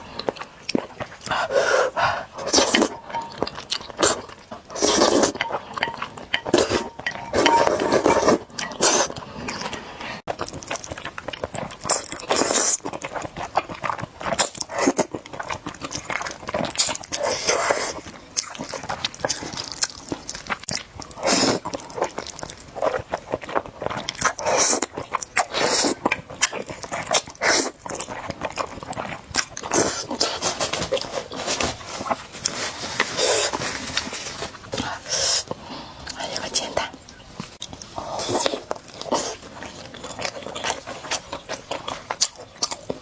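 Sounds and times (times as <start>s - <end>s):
slurping noodles: 3.9s - 5.8s, 6.5s - 10.2s.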